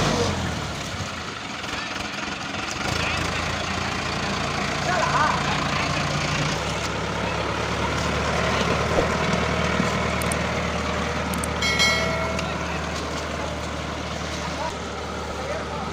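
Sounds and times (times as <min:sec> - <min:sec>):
diesel tractor engine droning: 0:00.0 - 0:15.9
short pitched tone: 0:11.6 - 0:12.8.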